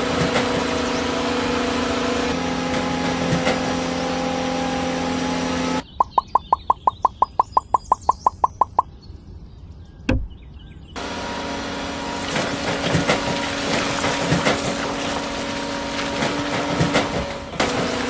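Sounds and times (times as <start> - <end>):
fast beeps: 5.9 - 8.9.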